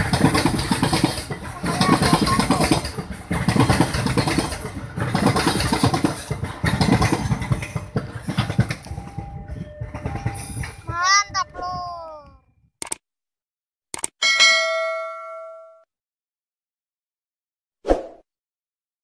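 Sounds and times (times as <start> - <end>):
wagon knocks: 0.0 - 11.9
train wheels clattering on rails: 0.0 - 12.4.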